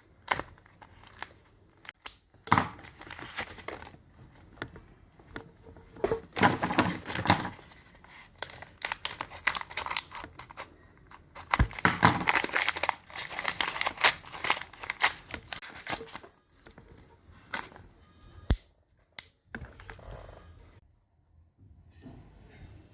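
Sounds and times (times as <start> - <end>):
plastic packaging crinkling and tearing: 0.1 - 4.0, 6.4 - 16.8.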